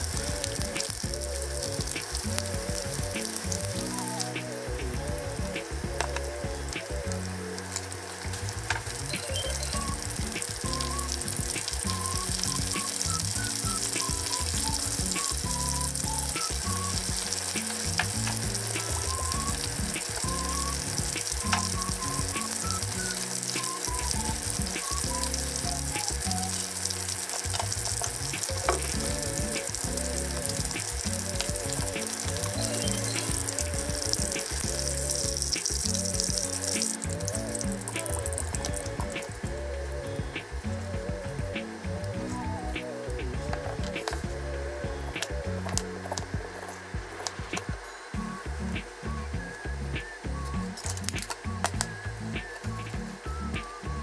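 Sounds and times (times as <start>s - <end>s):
chicken frying in oil: 0.0s - 54.0s
oil popping and crackling: 0.0s - 54.0s.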